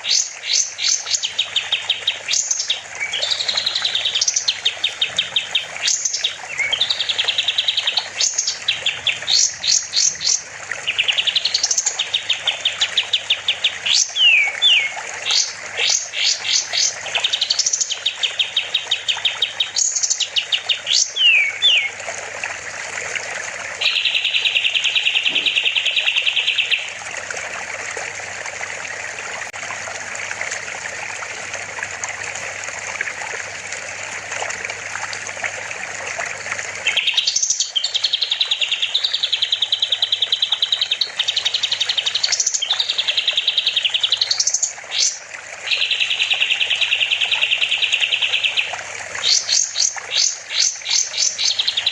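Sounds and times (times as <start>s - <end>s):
songbird singing buzzy trills: 0.0s - 22.0s, 23.8s - 27.0s, 36.8s - 51.9s
water trickling: 0.0s - 51.9s.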